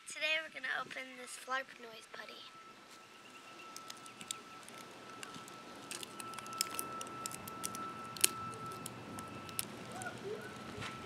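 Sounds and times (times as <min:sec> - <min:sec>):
packaging clicks and crackles: 0:03.6 - 0:11.0.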